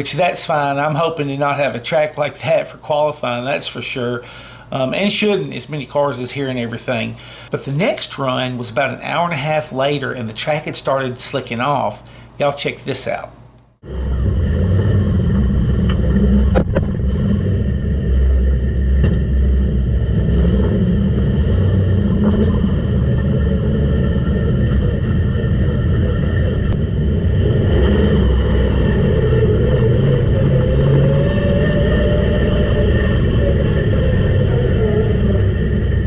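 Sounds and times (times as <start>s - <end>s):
race car engine rumbling: 13.8s - 36.0s.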